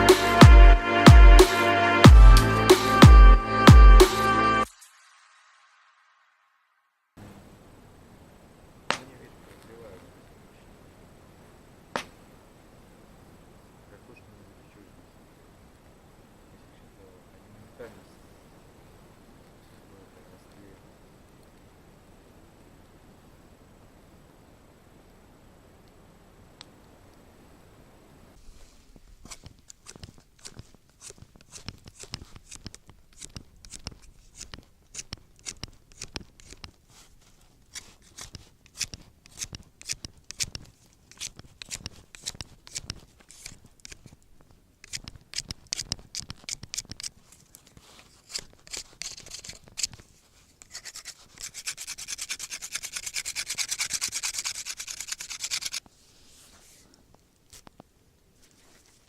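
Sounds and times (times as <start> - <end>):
scraping and rubbing: 28.4 - 44.2, 44.8 - 56.9
fast rasping scrape: 29.2 - 44.2, 47.8 - 56.8.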